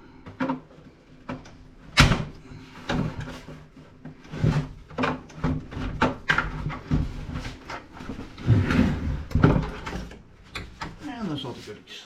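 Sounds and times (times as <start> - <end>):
plastic and metal parts knocking: 4.1 - 7.9.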